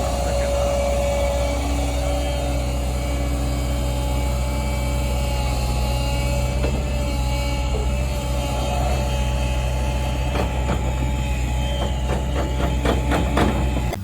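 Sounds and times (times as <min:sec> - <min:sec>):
large engine running: 0:00.0 - 0:14.0
sharp knocks or clanks: 0:06.4 - 0:14.0.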